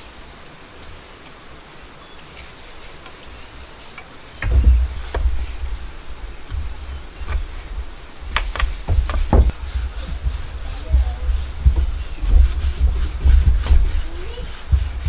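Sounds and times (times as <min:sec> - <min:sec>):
hissing rubbing: 0:02.3 - 0:15.0
sharp knocks on wood: 0:04.4 - 0:15.0.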